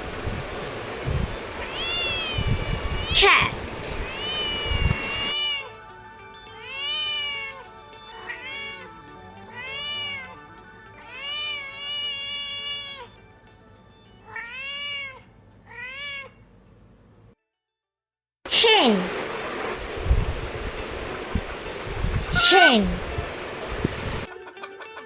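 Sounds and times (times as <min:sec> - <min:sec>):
cat meowing: 0:01.6 - 0:05.8, 0:06.6 - 0:10.4, 0:11.0 - 0:13.2, 0:14.2 - 0:16.4, 0:21.9 - 0:23.5.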